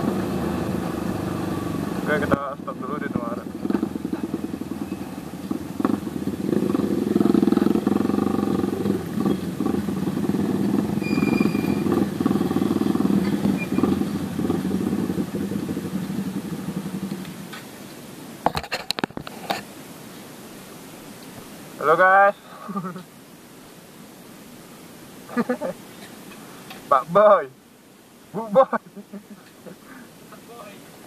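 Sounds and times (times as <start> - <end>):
motorcycle engine running: 0.0 - 17.5.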